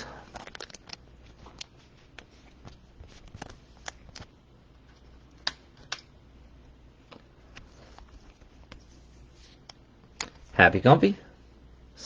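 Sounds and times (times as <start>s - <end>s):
cards being handled clicking: 0.3s - 4.3s, 4.9s - 6.1s.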